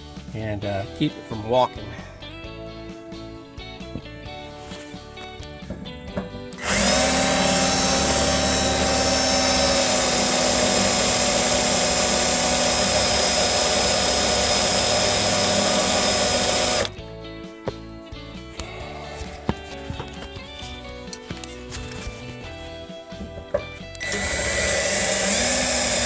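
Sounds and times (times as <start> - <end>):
cordless drill boring through metal: 6.6 - 17.0, 24.0 - 26.0.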